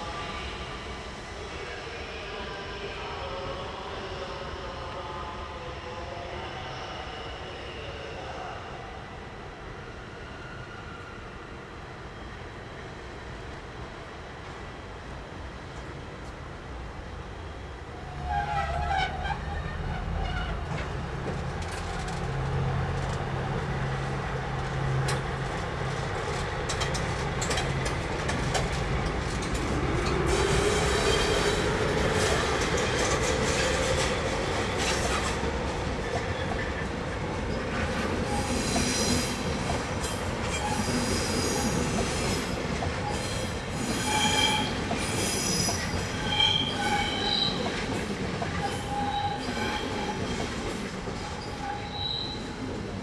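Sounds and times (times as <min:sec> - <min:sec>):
train passing on tracks: 0:00.0 - 0:53.0
high-pitched wheel squeal: 0:45.5 - 0:47.6, 0:51.4 - 0:52.5.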